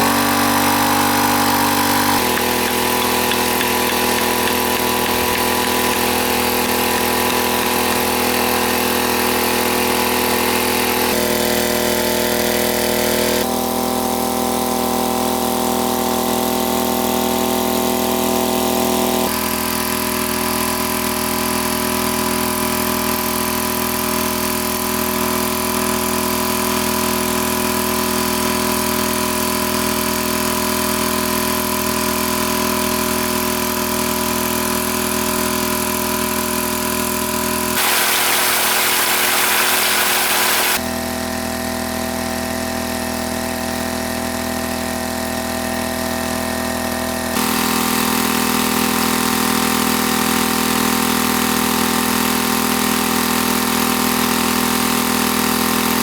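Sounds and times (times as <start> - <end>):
small engine humming: 0.0 - 41.1, 47.2 - 56.0
loud hiss: 37.8 - 40.8.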